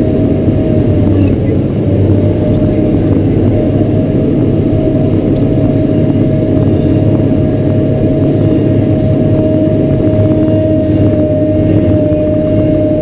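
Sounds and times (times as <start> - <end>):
diesel engine running under load: 0.0 - 13.0.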